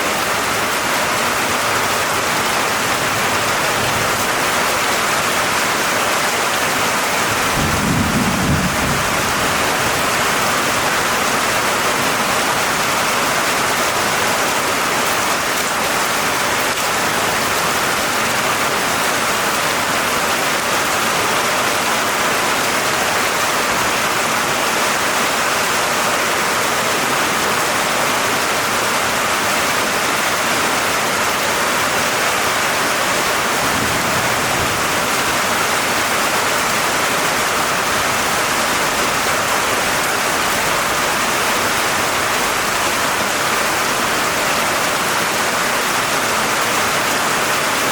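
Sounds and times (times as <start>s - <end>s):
steady rain falling: 0.0s - 47.9s
low rumble of thunder: 7.4s - 10.4s.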